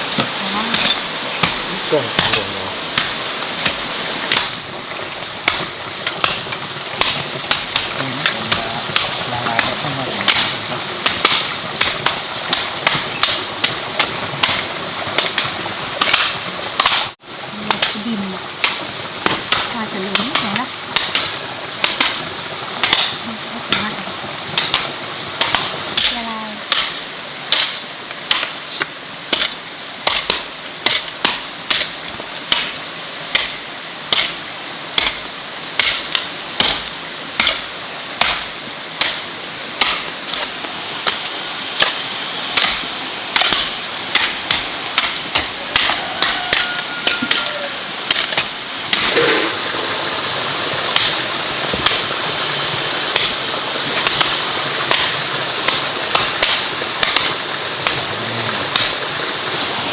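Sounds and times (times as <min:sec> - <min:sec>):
steady hiss: 0:00.0 - 0:59.9
sharp knocks: 0:48.1 - 0:49.9.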